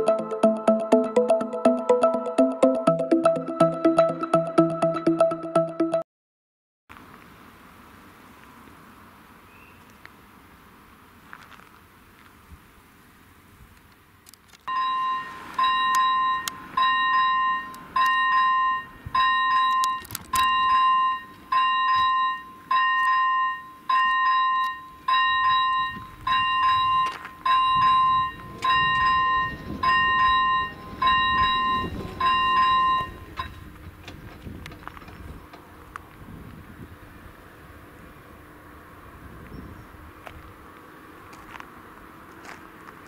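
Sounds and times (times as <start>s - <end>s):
level-crossing bell ringing: 0.0s - 6.0s, 14.7s - 19.9s, 20.5s - 33.6s.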